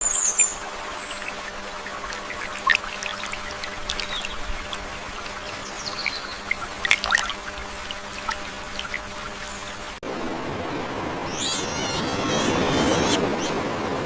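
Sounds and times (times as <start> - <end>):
water trickling: 0.0 - 10.0.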